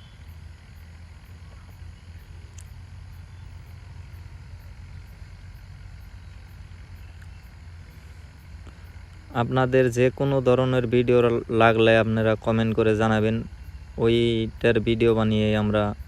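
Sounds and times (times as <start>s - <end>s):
steady low hum: 0.0s - 16.0s
faint tick: 7.2s - 7.4s.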